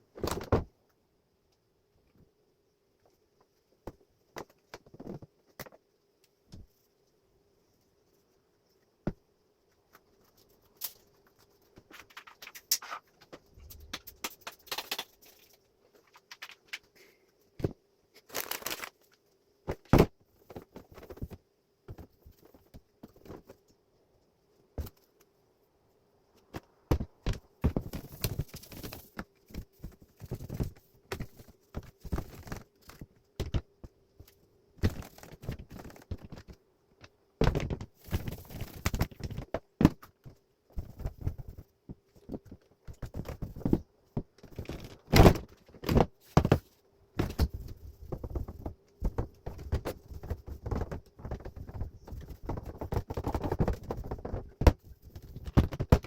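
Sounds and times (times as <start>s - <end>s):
faint steady hum: 0.0s - 56.0s
hands handling plastic parts: 9.7s - 23.8s.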